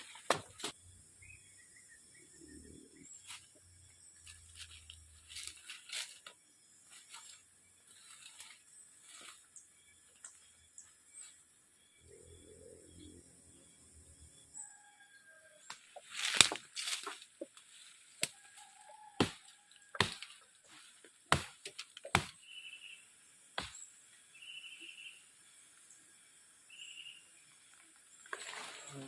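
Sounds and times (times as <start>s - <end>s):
faint high chirps: 22.4s - 27.6s.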